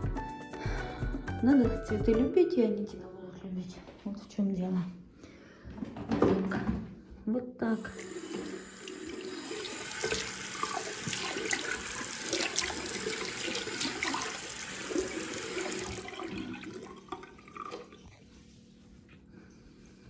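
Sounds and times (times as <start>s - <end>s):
tap water running into sink: 7.7s - 18.0s.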